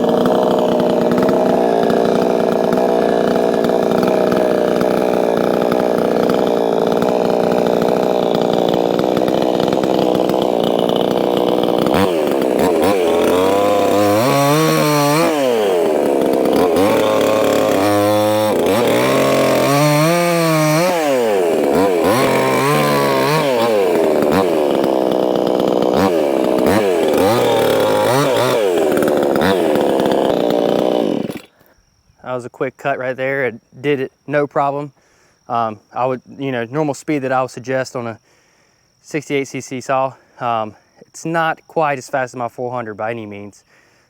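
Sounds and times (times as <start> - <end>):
chainsaw cutting wood: 0.0 - 31.7.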